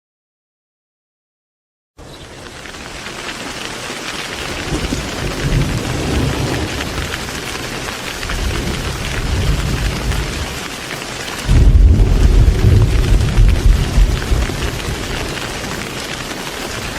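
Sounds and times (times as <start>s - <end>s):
heavy rain: 2.0s - 16.9s
thunder rumbling: 4.5s - 10.7s, 11.4s - 16.9s.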